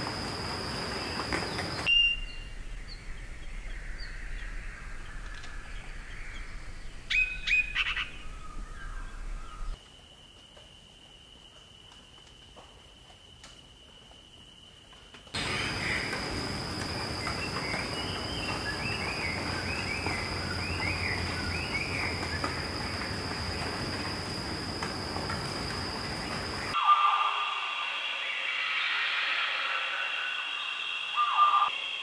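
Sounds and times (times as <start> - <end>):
birds chirping: 15.4 - 31.9
steady high-pitched tone: 26.6 - 32.0.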